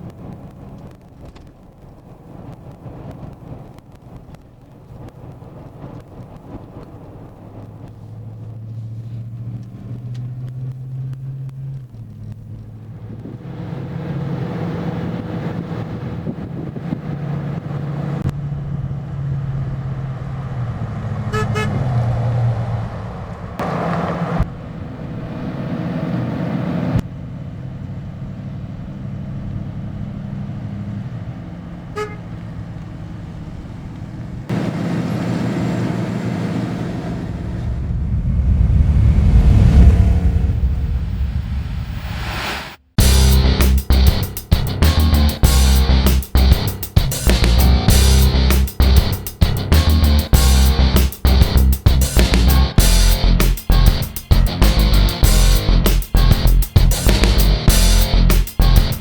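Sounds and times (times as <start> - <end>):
car engine revving: 7.5 - 27.0, 34.5 - 59.0.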